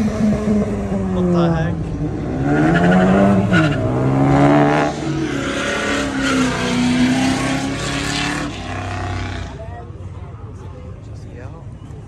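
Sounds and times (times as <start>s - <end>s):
car engine accelerating hard: 0.0s - 9.6s.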